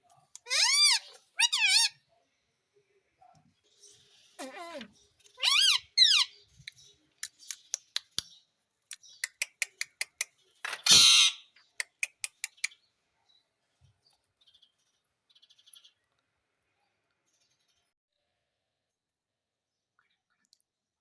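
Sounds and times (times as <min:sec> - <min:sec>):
parrot squawk: 0:00.4 - 0:02.0, 0:04.4 - 0:06.3, 0:10.8 - 0:11.5
parrot rapid clicks: 0:08.9 - 0:10.8.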